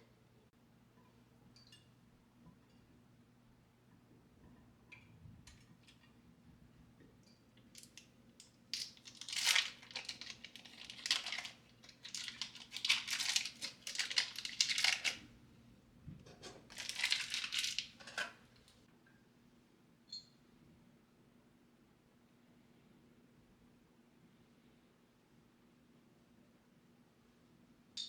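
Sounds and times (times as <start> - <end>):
crinkling and rustling: 8.7 - 15.3, 16.1 - 18.8.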